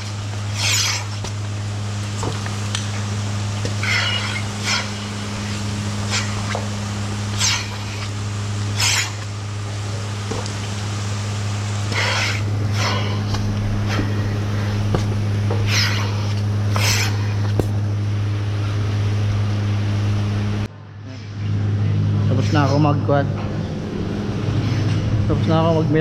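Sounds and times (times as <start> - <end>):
milking machinery humming: 0.0 - 26.0
short hissing bursts: 8.7 - 9.3.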